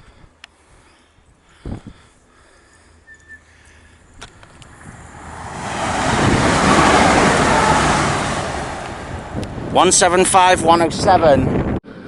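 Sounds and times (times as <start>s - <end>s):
train passing close by: 4.8s - 9.7s.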